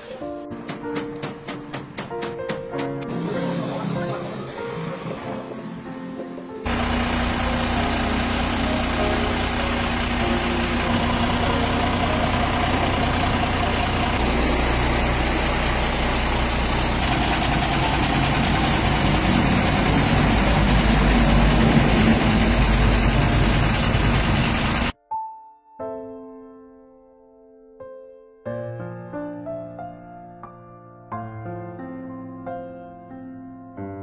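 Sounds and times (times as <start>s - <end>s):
truck engine idling: 6.7s - 24.9s.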